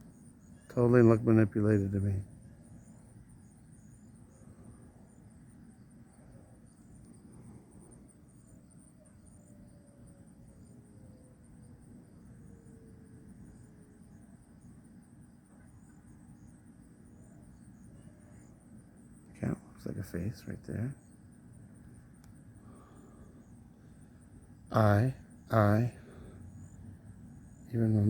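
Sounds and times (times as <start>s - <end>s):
insect chorus trilling: 0.0s - 28.0s
low background rumble: 20.7s - 28.0s.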